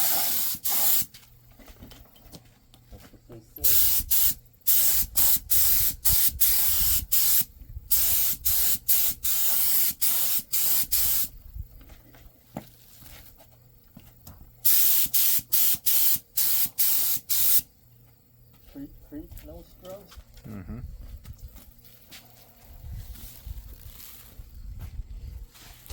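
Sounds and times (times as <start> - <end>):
spray paint can hissing bursts: 0.0 - 1.1, 3.6 - 11.3, 14.6 - 17.7.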